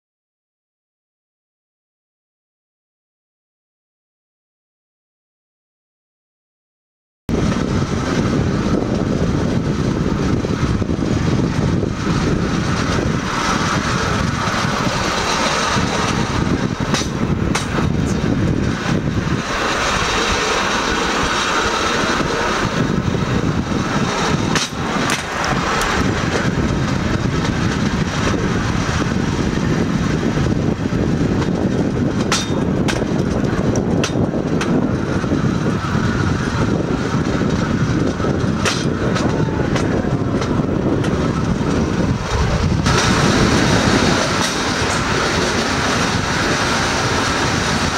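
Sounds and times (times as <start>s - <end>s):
steel wheels rolling on track: 7.3s - 47.9s
clacks at rail joints: 11.3s - 22.7s, 23.9s - 36.4s, 37.0s - 47.9s.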